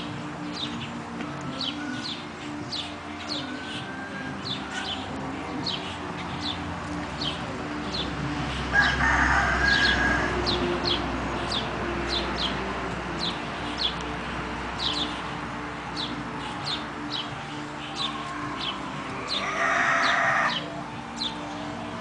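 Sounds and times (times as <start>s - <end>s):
rooster crowing: 3.4s - 4.9s, 8.7s - 10.6s, 18.0s - 20.8s.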